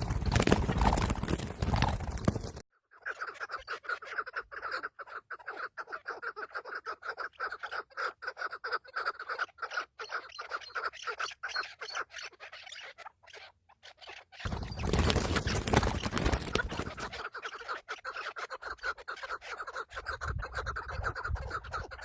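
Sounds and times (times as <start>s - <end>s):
bird chattering call: 3.0s - 22.0s.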